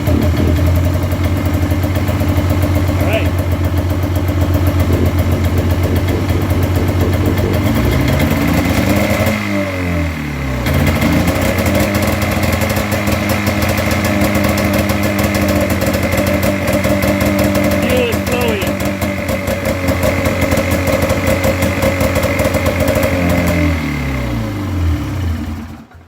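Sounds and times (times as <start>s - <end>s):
snowmobile engine running: 0.0s - 25.7s.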